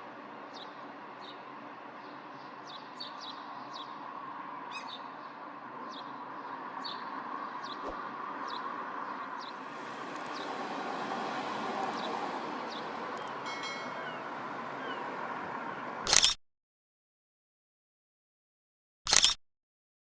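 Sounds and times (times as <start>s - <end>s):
distant city noise: 0.0s - 16.3s
small birds chirping: 0.4s - 10.6s, 11.8s - 16.2s.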